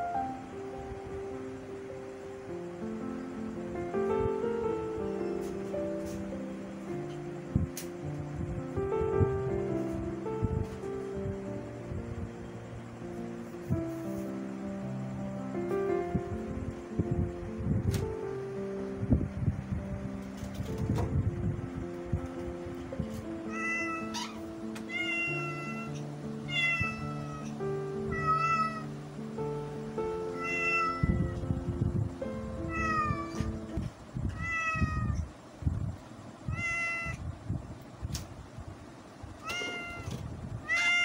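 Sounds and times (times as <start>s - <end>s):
cat meowing: 23.4s - 28.9s, 30.3s - 31.4s, 32.6s - 33.7s, 34.3s - 35.3s, 36.5s - 37.2s, 39.4s - 41.0s.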